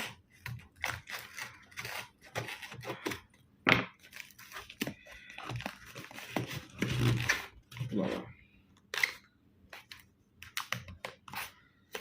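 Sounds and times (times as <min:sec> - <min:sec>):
packaging tearing and rustling: 0:04.0 - 0:07.9.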